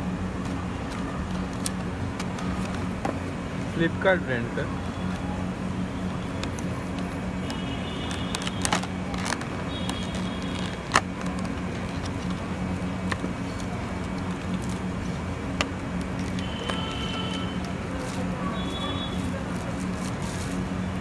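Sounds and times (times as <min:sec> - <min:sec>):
engine idling hum: 0:00.0 - 0:21.0.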